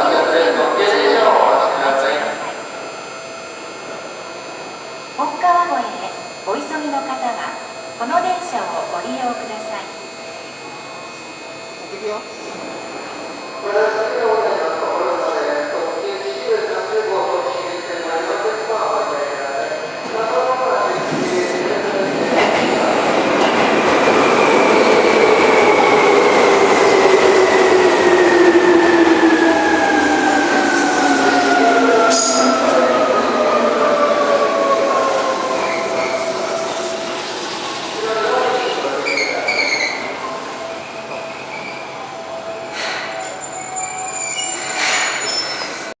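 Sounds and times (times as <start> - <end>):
electric train slowing with whine: 0.0 - 46.0
train brakes squealing: 29.8 - 45.9.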